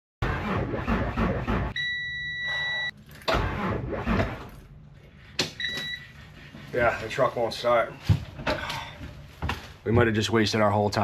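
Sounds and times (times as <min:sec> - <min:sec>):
diesel engine cranking: 0:00.2 - 0:01.8, 0:02.8 - 0:04.8
electronic beep: 0:01.8 - 0:03.0.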